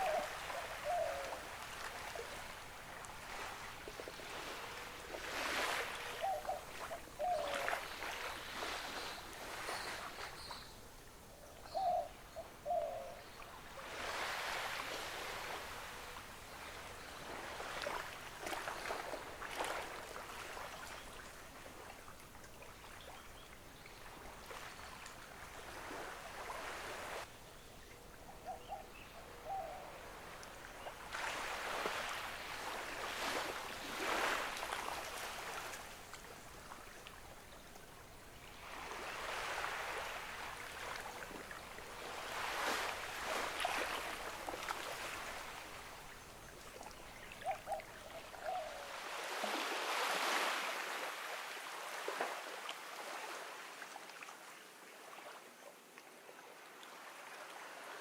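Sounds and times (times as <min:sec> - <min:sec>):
ocean waves washing onto beach: 0:00.0 - 0:10.4, 0:13.6 - 0:23.0, 0:23.6 - 0:27.3, 0:29.8 - 0:48.3.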